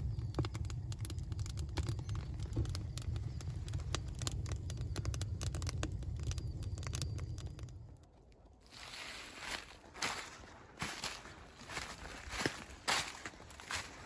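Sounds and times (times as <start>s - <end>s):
sharp clicks and crackles: 0.0s - 8.5s
low rumble: 0.0s - 9.0s.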